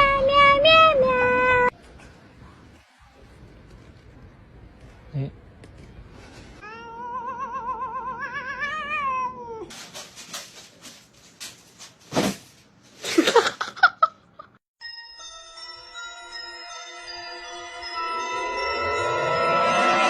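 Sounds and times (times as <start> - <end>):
cat yowling: 6.6 - 9.7
light chiming music: 14.8 - 20.0.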